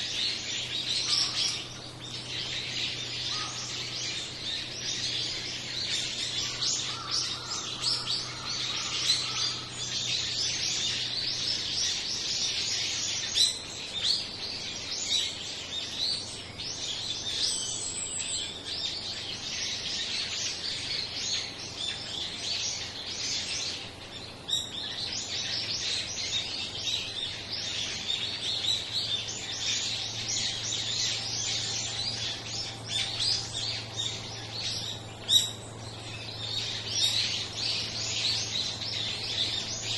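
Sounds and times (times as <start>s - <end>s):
flock of small birds chirping: 0.0s - 39.9s.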